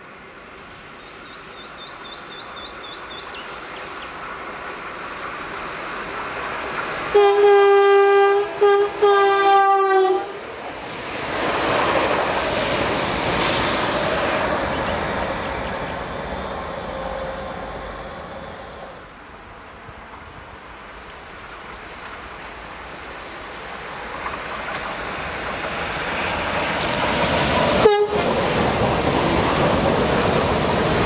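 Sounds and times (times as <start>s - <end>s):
train wheels rushing on rails: 0.0s - 31.0s
train horn blast: 7.1s - 10.4s, 27.8s - 28.4s.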